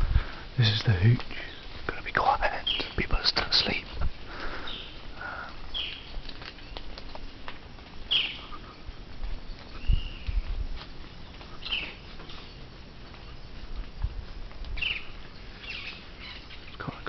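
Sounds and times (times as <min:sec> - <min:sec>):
birds chirping: 0:00.0 - 0:17.0
faint clicks: 0:05.2 - 0:15.9.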